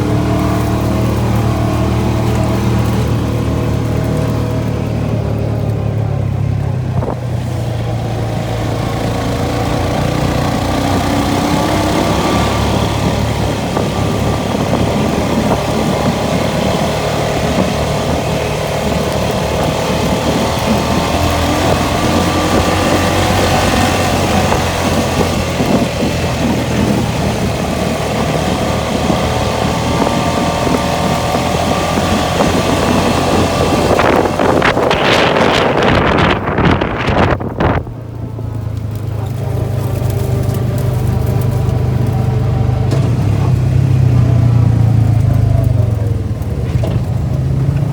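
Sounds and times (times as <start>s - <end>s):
atv engine running: 0.0s - 47.9s
rough ride rumble: 0.0s - 47.9s
wind noise on microphone: 0.0s - 47.9s.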